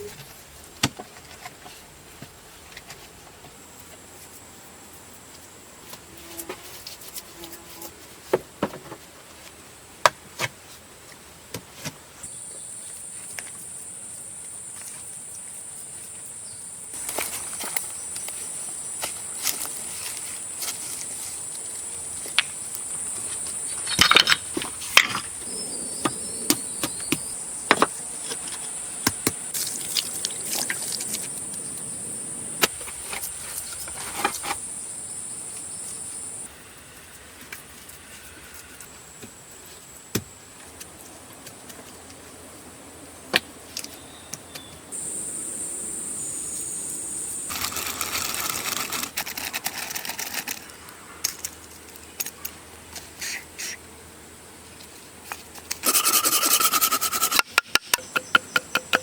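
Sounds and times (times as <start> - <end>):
high-pitched insect drone: 34.3 - 36.5, 45.0 - 49.1, 55.8 - 57.4
scattered clicks and knocks: 55.7 - 59.0.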